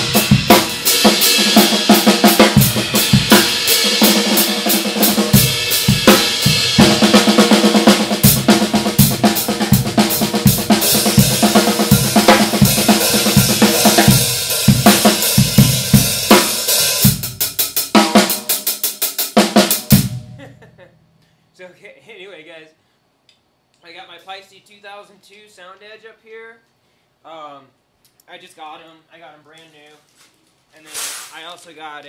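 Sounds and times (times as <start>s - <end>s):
hi-hats and cymbals: 0.0s - 20.4s
drum kit playing a groove: 0.0s - 20.8s.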